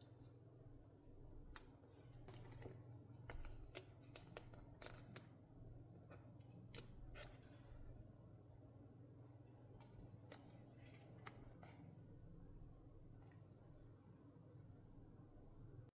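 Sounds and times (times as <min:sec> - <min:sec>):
scissors snipping paper: 0:03.3 - 0:05.4.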